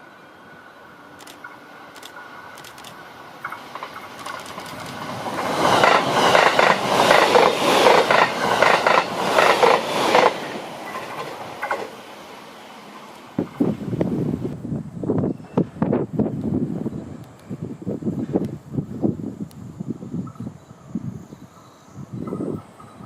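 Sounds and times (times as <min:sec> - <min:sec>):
train wheels clattering: 0:02.6 - 0:12.0.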